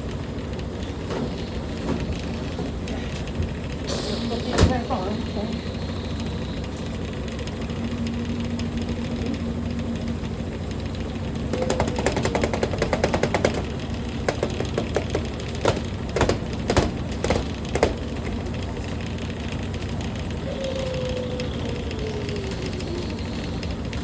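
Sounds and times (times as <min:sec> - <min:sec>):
washing machine humming: 0:00.0 - 0:24.0
fast rattle of clicks: 0:06.0 - 0:24.0
knocks: 0:11.5 - 0:18.4.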